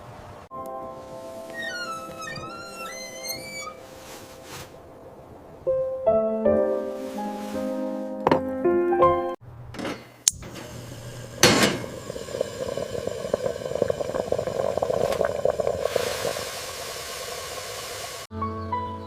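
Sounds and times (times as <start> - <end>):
fine crackling: 0.6 - 5.4, 6.6 - 8.2
steady hiss: 6.8 - 8.1, 10.4 - 18.3.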